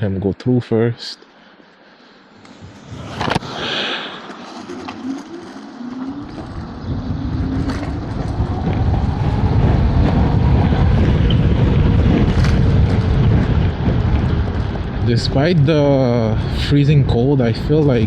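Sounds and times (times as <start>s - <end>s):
electric scooter motor whine: 2.3s - 14.9s
wind buffeting microphone: 2.5s - 18.0s.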